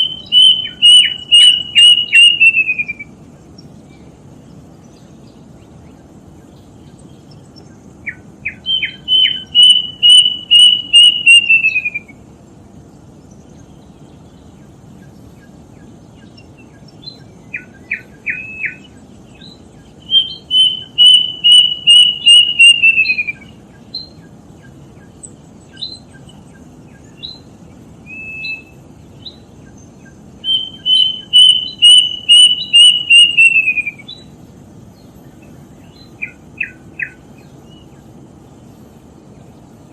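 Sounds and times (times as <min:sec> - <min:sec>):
cuckoo singing whistled notes: 0:00.0 - 0:03.2, 0:08.0 - 0:12.2, 0:16.3 - 0:24.7, 0:25.7 - 0:34.3.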